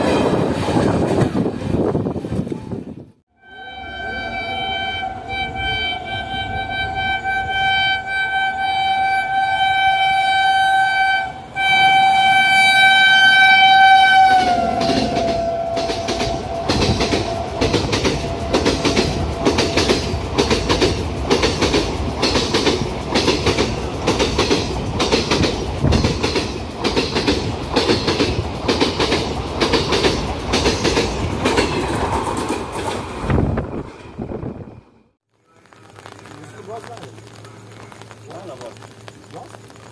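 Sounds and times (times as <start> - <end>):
locomotive horn blast: 3.3 - 20.2
train wheels clattering over rail joints: 14.8 - 33.3.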